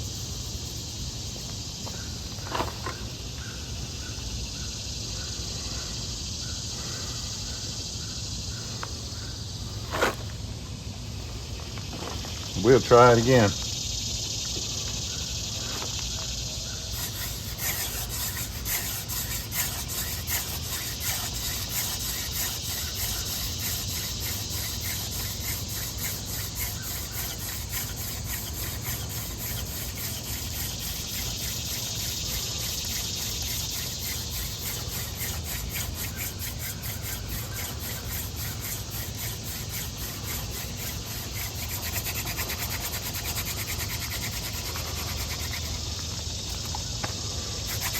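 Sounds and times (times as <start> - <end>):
wood squeaking on wood: 16.9 - 45.8.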